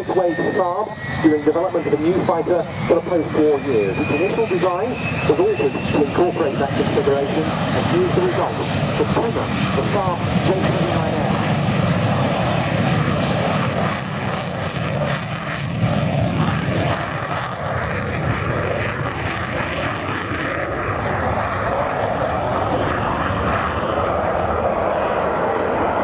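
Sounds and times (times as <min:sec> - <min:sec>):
jet engine roaring: 0:00.0 - 0:26.0.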